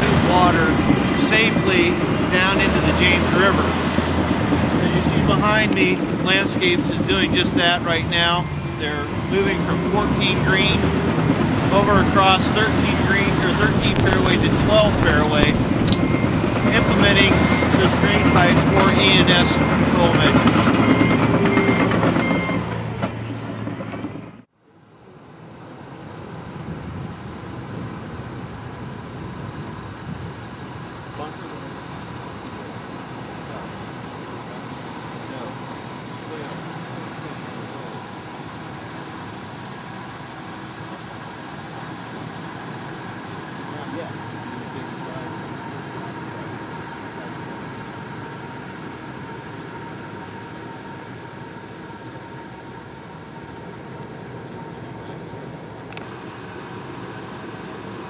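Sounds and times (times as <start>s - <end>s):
construction machinery rumbling: 0.0s - 58.0s
diesel engine running: 0.0s - 58.0s
steady background noise: 0.0s - 58.0s
faint steady whine: 4.7s - 20.3s
backup alarm beeping: 4.9s - 22.8s.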